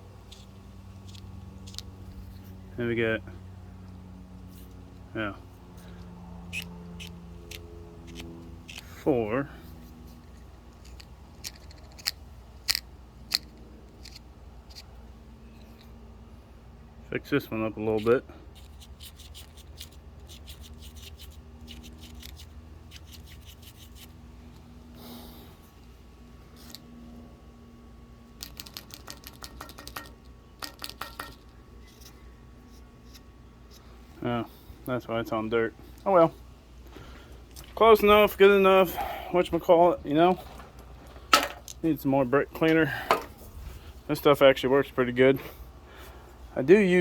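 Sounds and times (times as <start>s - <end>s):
marker clicking and scratching on metal: 0.2s - 2.4s, 6.5s - 15.9s, 17.7s - 24.2s, 28.4s - 33.9s
marker scratching on metal: 6.5s - 9.1s, 18.0s - 24.1s.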